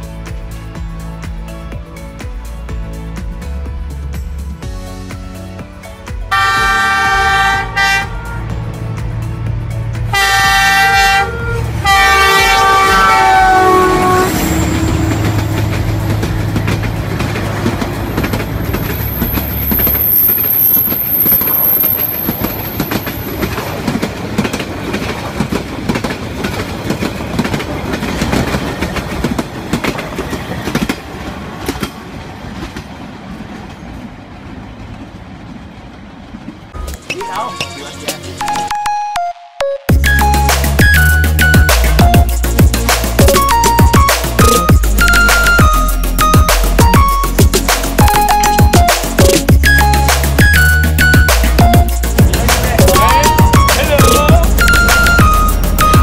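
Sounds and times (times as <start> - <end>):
passing train rumble and clatter: 0.0 - 38.5, 40.0 - 56.0
train horn blasts: 6.3 - 8.6, 10.1 - 15.4.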